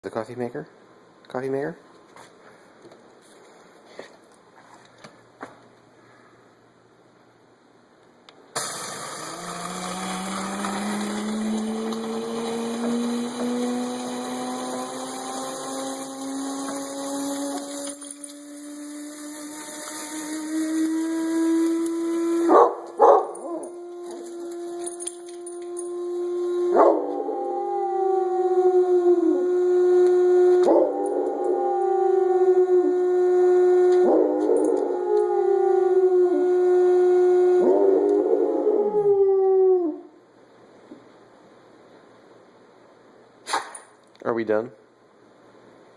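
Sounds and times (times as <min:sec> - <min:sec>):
coffee maker whining: 0:08.6 - 0:27.6, 0:28.2 - 0:38.2
dog howling: 0:10.0 - 0:40.2.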